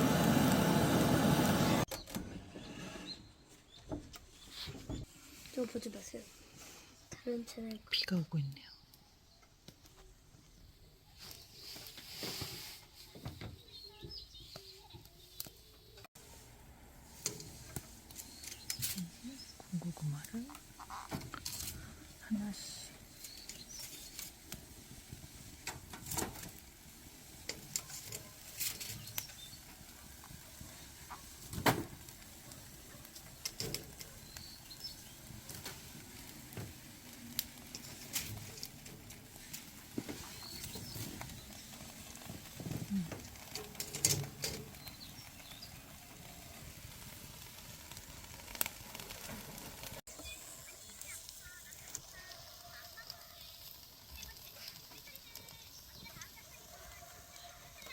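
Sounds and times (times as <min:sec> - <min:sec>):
wood fire crackling: 0:00.0 - 0:57.9
low hiss: 0:15.0 - 0:56.8.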